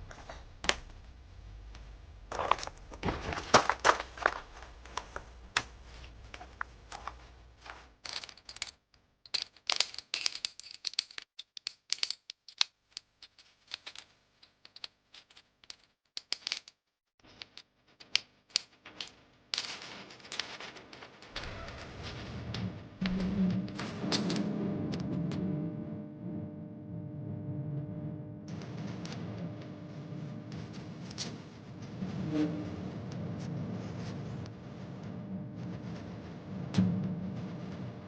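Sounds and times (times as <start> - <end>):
small objects clicking and clattering: 6.4 - 21.8.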